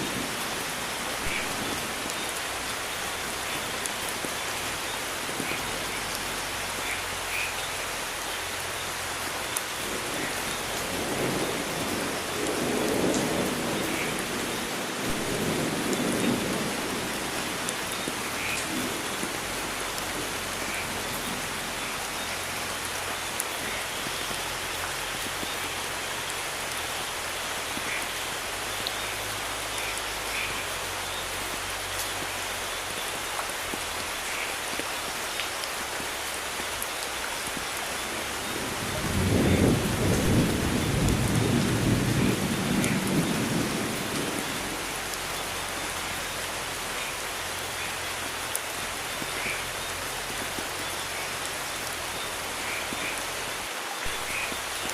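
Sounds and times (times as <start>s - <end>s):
rain falling: 0.0s - 54.9s
raindrop ticks: 9.4s - 46.1s, 46.9s - 53.3s
thunder rumble: 9.9s - 22.6s, 38.1s - 45.2s.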